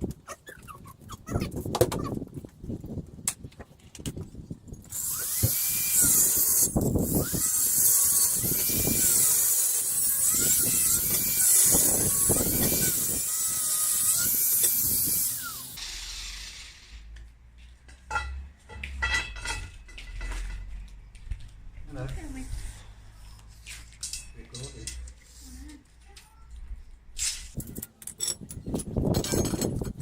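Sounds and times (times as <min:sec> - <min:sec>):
power tool cutting steel: 0:04.9 - 0:17.1.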